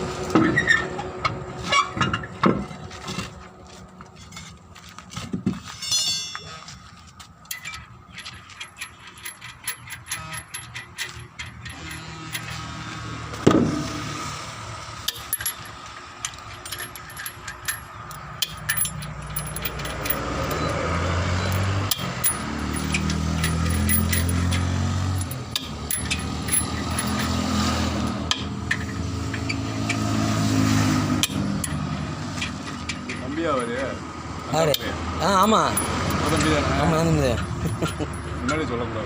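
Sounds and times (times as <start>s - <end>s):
light metallic clinks: 7.5s - 12.8s, 15.1s - 20.8s, 21.4s - 27.7s, 34.7s - 36.7s.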